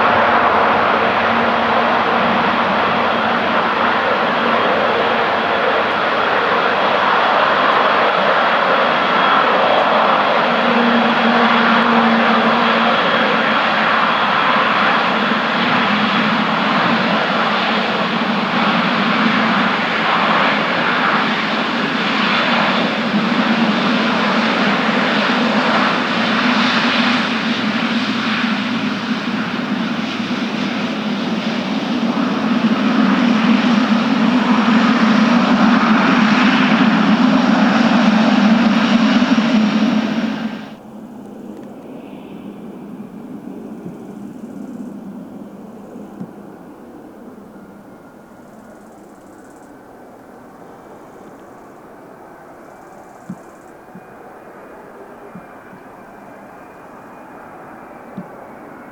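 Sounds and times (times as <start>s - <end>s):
jet engines at high power: 0.0s - 58.9s.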